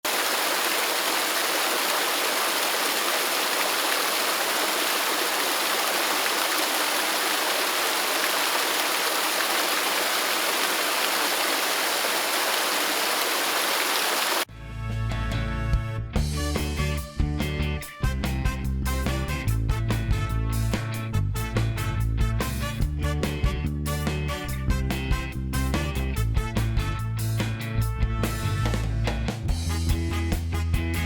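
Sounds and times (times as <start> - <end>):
waterfall pouring: 0.0 - 14.5.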